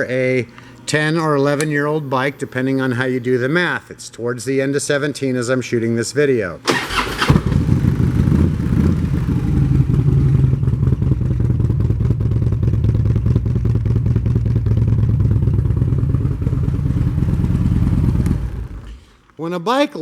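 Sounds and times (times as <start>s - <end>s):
motorcycle engine idling: 6.8s - 19.0s.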